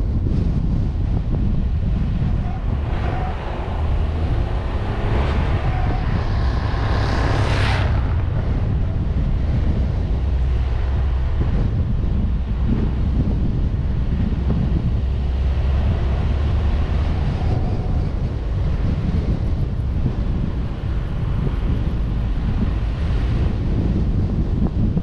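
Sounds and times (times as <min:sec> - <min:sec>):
wind and road rumble: 0:00.0 - 0:25.0
hissing rush: 0:01.6 - 0:11.3.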